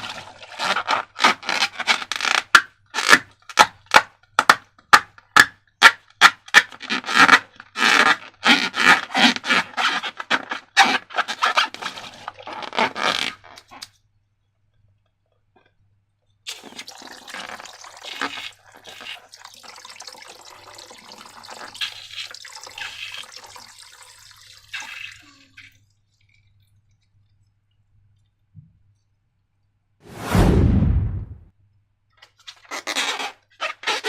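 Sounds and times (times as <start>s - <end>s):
loud sudden burst: 30.1s - 31.5s.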